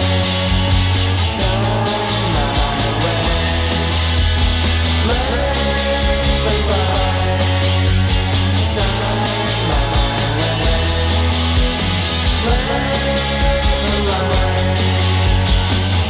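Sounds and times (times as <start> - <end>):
rock music with distorted guitars: 0.0 - 16.0.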